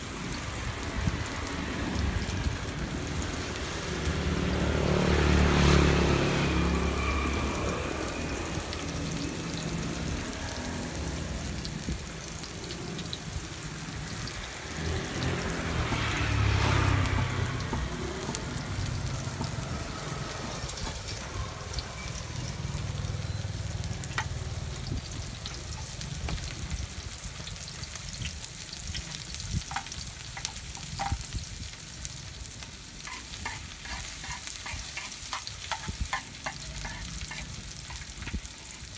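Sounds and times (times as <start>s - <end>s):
food sizzling in hot oil: 0.0s - 38.9s
oil popping: 7.6s - 31.4s.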